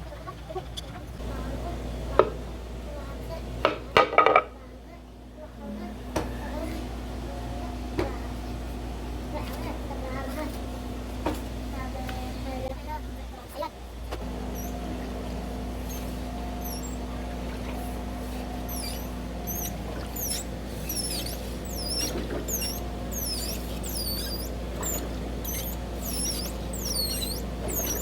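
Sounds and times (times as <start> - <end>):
exercise machine humming: 9.0 - 28.0
high-pitched squeak: 14.6 - 14.8, 15.9 - 17.0, 18.7 - 28.0.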